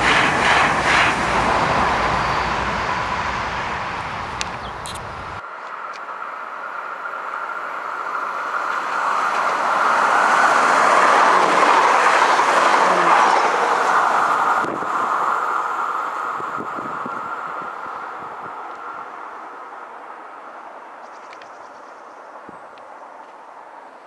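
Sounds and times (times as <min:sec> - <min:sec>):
train wheels on rails: 0:00.0 - 0:06.2, 0:07.1 - 0:19.6.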